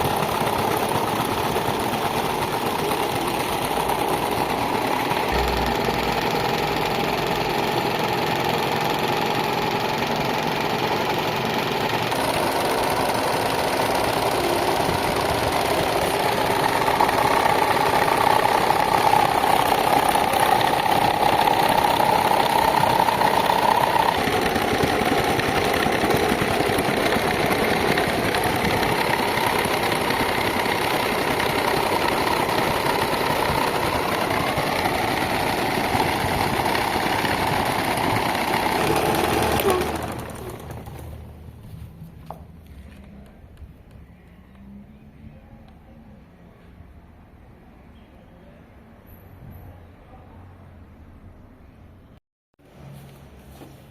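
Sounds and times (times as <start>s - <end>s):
electric fan motor whine: 0.0s - 41.3s.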